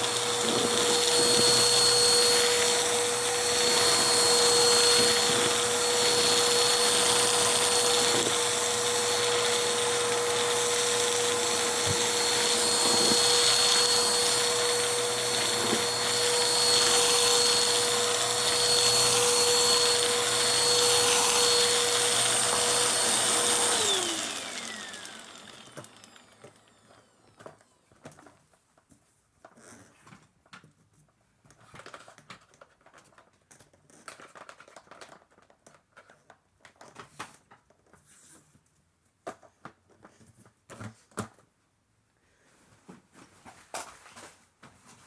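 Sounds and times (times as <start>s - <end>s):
motor winding down whine: 0.0s - 27.0s
vacuum cleaner running: 0.0s - 27.6s.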